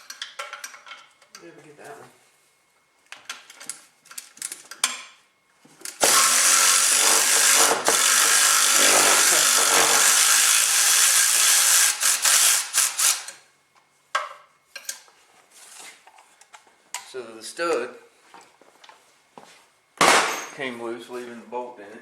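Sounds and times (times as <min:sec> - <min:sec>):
cordless power tool running: 0:06.0 - 0:13.4.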